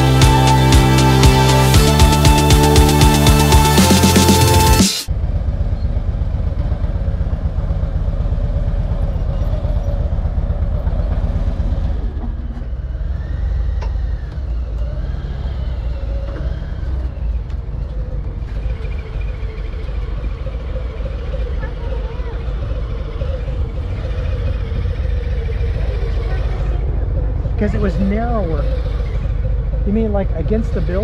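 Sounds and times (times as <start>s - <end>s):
background music: 0.0s - 5.1s
motorcycle engine rumbling: 0.0s - 31.0s.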